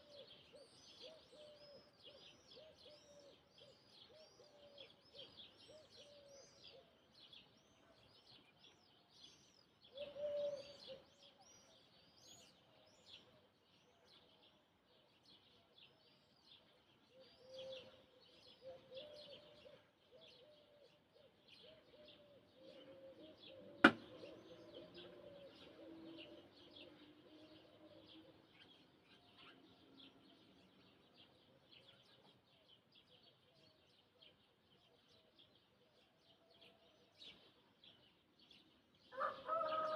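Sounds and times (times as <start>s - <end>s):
small birds chirping: 0.0s - 39.9s
sharp click: 23.8s - 24.1s.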